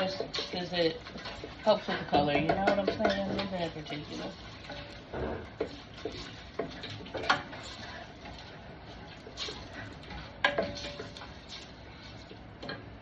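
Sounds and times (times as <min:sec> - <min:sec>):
kitchen utensils clicking and knocking: 0:00.0 - 0:05.0, 0:09.4 - 0:11.7.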